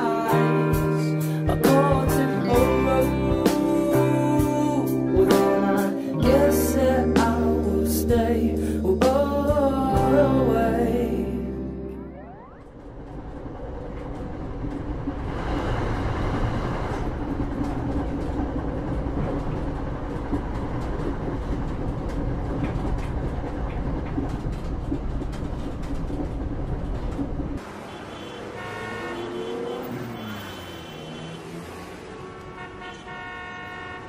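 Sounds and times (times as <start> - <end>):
train carriage rumbling and rattling: 12.7 - 27.6
car horns honking: 27.6 - 34.0.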